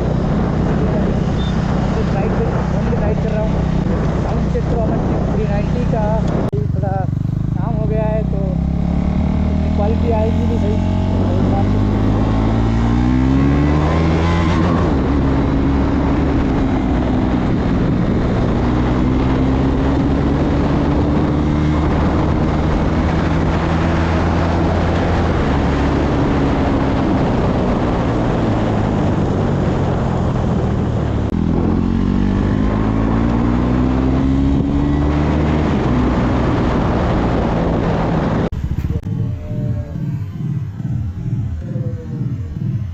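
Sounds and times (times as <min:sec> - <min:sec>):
steady rushing noise: 0:00.0 - 0:07.8, 0:35.1 - 0:42.9
motorcycle engine under way: 0:00.0 - 0:42.9.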